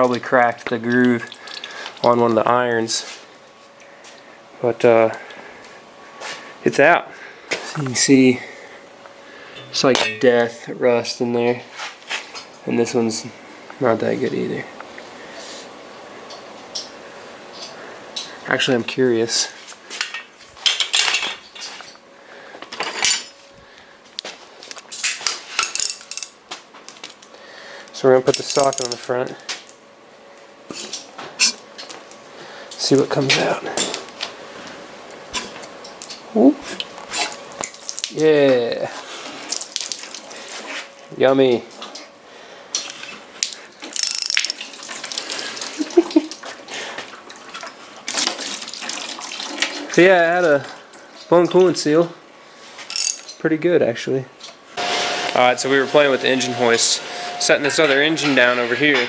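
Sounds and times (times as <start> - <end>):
metal tools clinking: 9.6 - 10.8, 22.8 - 23.4, 25.0 - 27.1, 28.3 - 29.8, 30.7 - 34.3, 42.8 - 45.8, 52.9 - 53.4
coolant splashing and pouring: 44.4 - 46.4, 47.0 - 50.1.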